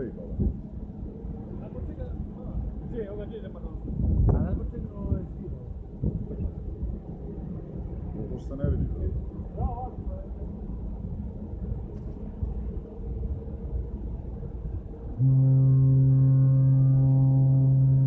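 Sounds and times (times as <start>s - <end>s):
low rumble: 0.0s - 18.0s
ship horn blast: 15.1s - 18.0s.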